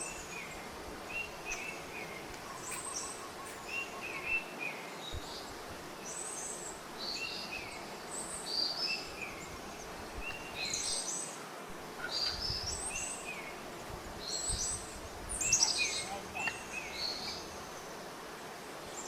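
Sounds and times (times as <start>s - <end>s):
birds chirping: 0.0s - 11.4s, 14.2s - 18.0s
steady background hiss: 0.0s - 19.0s.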